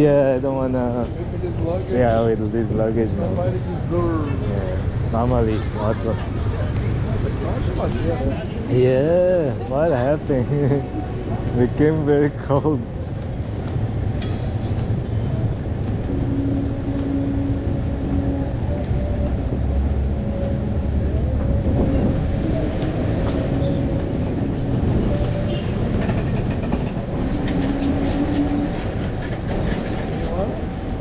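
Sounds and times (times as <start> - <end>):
train rumble: 0.0 - 31.0
faint clicks: 3.1 - 8.5, 9.9 - 30.2
pitched hum: 9.9 - 29.3.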